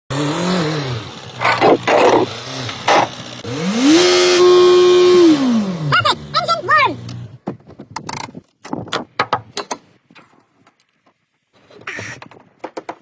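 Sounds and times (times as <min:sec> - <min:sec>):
car engine revving: 0:00.1 - 0:07.4.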